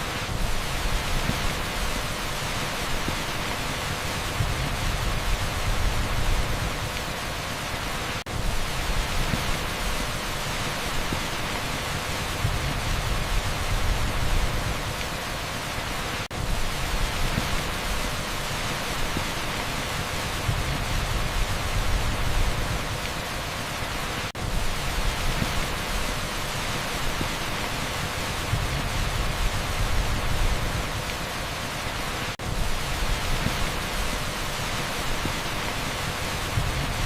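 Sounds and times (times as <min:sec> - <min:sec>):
heavy downpour on asphalt: 0:00.0 - 0:37.0.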